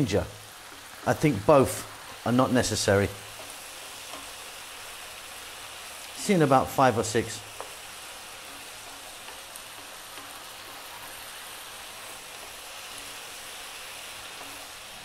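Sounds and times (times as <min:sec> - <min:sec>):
meat and onions sizzling in oil: 0:00.0 - 0:15.0
wooden spoon stirring: 0:07.5 - 0:15.0.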